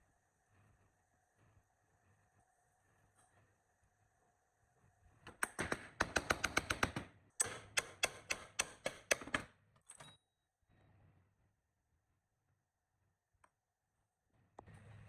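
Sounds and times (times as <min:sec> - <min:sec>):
sharp taps or knocks: 0:05.3 - 0:09.5.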